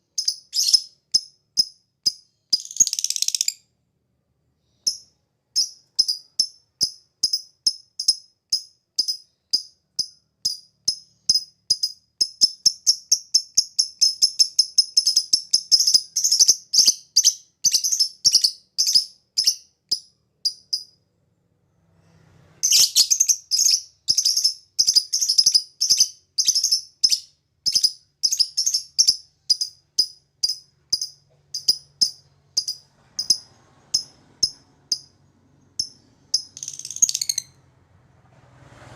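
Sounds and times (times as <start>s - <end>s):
lovebird chirping rapidly: 0.0s - 3.6s, 4.7s - 21.0s, 22.6s - 35.1s, 35.7s - 37.6s.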